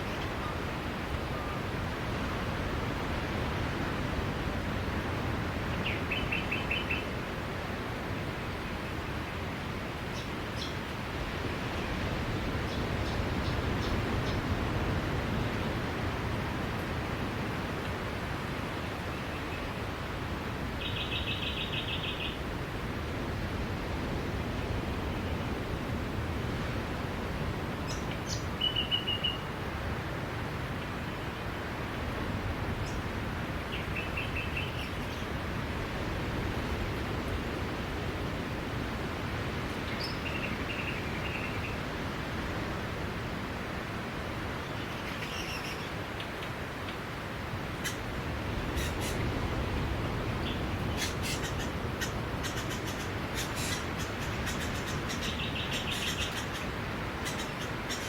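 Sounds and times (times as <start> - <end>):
sea waves on a beach: 0.0 - 20.9, 22.3 - 58.0
bird trill: 51.0 - 58.0.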